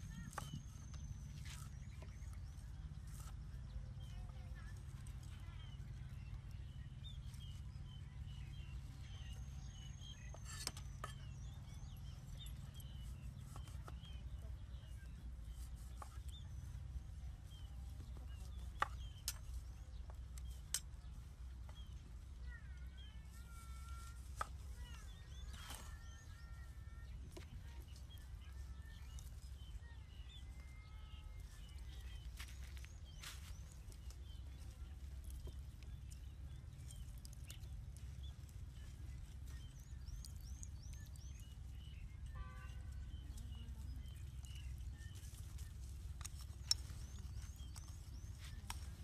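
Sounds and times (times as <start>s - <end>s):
low steady rumble: 0.0s - 49.0s
small birds chirping: 0.0s - 49.0s.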